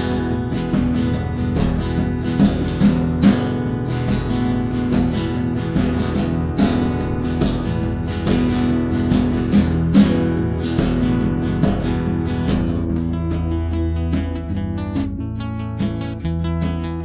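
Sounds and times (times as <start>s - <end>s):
acoustic guitars strumming: 0.0s - 17.0s.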